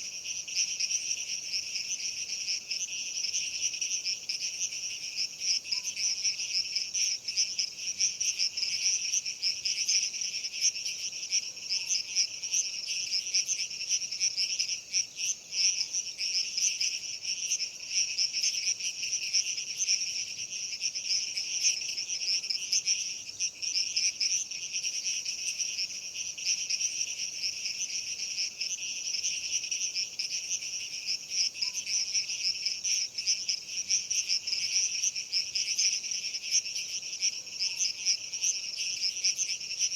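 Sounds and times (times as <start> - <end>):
insects chirring: 0.0 - 39.9.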